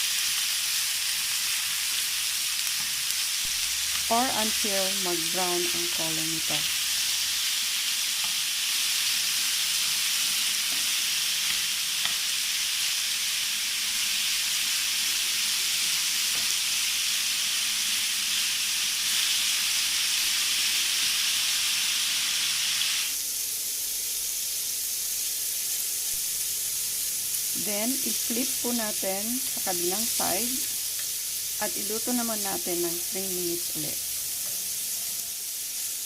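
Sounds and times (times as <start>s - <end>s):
chicken frying in hot oil: 0.0s - 36.0s.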